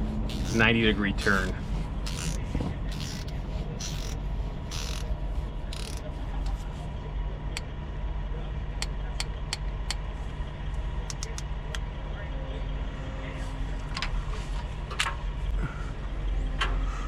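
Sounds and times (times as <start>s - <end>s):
ratchet wrench clicking: 0.3s - 5.1s, 5.7s - 6.1s, 11.1s - 11.4s.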